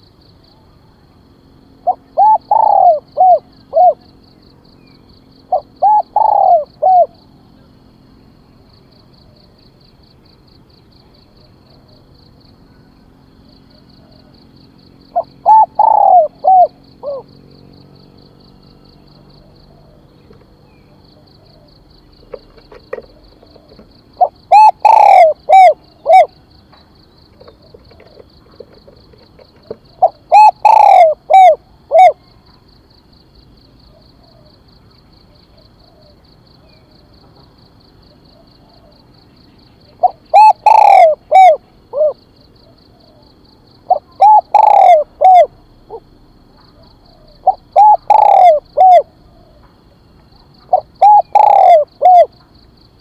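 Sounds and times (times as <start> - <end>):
dove cooing: 1.8 - 4.1, 5.5 - 7.3, 15.1 - 17.3, 18.9 - 26.4, 27.3 - 32.4, 35.3 - 36.8, 39.8 - 43.3, 43.9 - 46.1, 46.7 - 49.7, 50.6 - 52.5.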